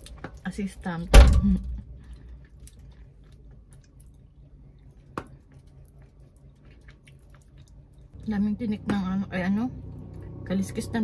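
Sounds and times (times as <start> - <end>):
person chewing wetly: 0.0 - 0.8, 1.9 - 8.4.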